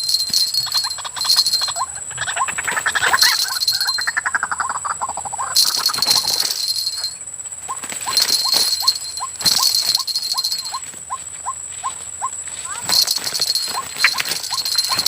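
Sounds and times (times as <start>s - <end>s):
bird calling: 0.0s - 15.0s.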